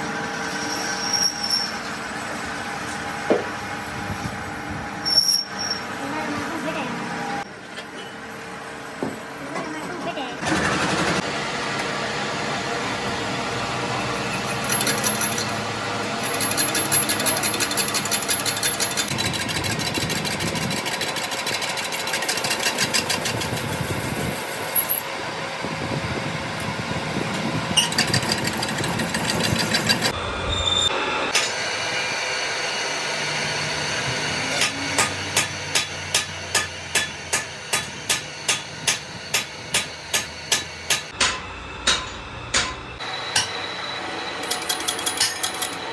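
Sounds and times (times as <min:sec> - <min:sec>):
workshop machining noise: 0:00.0 - 0:45.9
hammer striking metal: 0:31.3 - 0:31.8, 0:34.6 - 0:43.8, 0:44.4 - 0:45.8.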